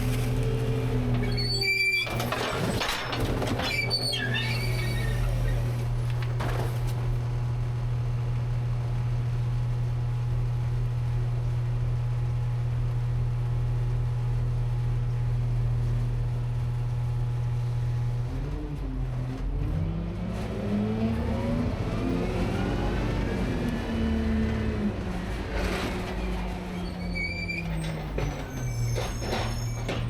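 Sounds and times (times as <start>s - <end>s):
garbage truck engine idling: 0.0s - 7.4s
high squeak: 1.0s - 5.6s, 26.7s - 30.0s.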